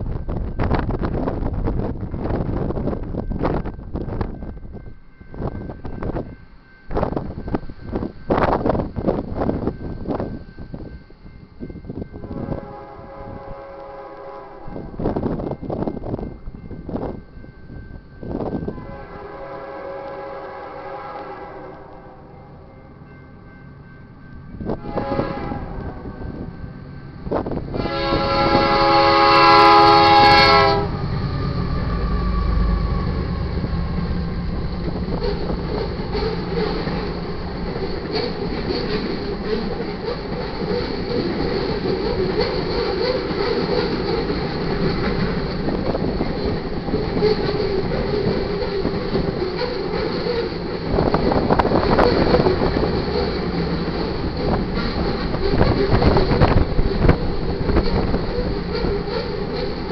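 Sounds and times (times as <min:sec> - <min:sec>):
freight train rumble and clickety-clack: 0:00.0 - 0:59.9
locomotive air horn blast: 0:12.2 - 0:15.0, 0:18.7 - 0:22.3, 0:24.8 - 0:26.2, 0:27.7 - 0:33.7.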